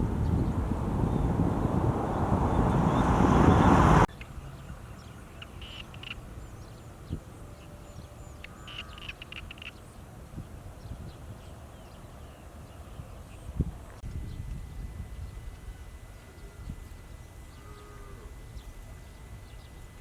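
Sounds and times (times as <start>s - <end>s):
loud rushing noise: 0.0s - 4.1s.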